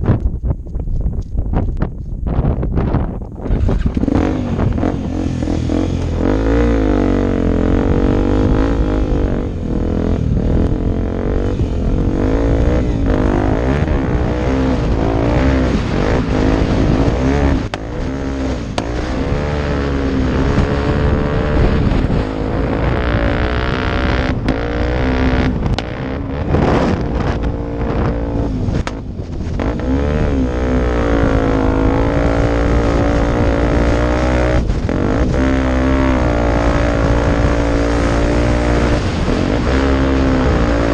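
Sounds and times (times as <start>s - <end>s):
motorcycle engine revving: 3.3s - 40.9s.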